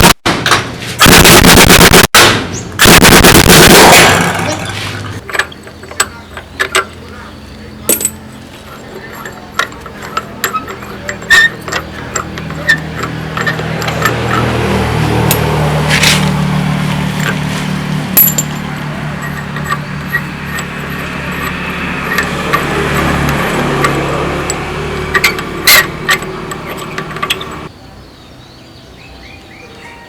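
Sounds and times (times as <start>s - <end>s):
metal tools clinking: 7.8s - 16.3s, 17.0s - 27.7s.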